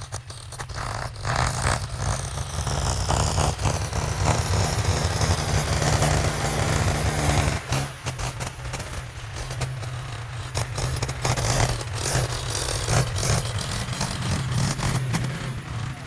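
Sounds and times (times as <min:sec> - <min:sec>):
heavy machine engine rumbling: 0:00.0 - 0:16.0.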